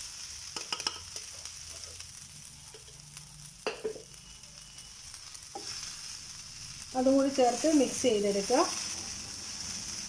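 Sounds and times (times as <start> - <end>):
coconut and spices sizzling: 0.0 - 10.0
utensils clicking on bowl and pan: 0.5 - 1.9.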